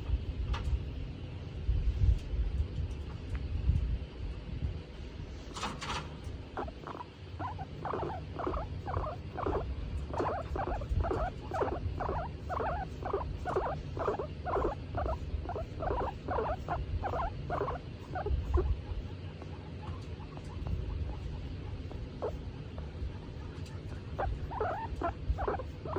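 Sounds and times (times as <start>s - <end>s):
low steady rumble: 0.0s - 25.9s
guinea pig squeaking: 6.4s - 25.9s.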